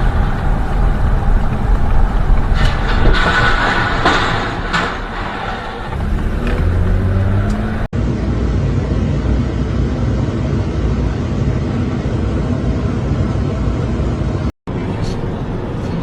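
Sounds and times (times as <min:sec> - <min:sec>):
moving vehicle rumble: 0:00.0 - 0:16.0.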